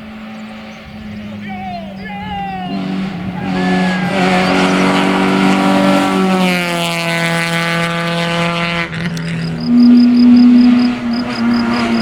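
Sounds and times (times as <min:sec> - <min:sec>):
car engine revving high: 0:00.0 - 0:12.0.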